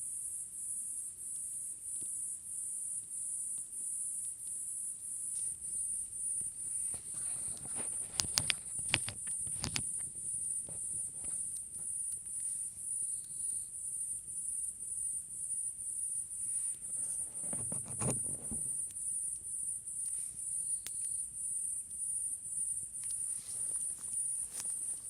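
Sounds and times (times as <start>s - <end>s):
crickets trilling: 0.0s - 25.0s.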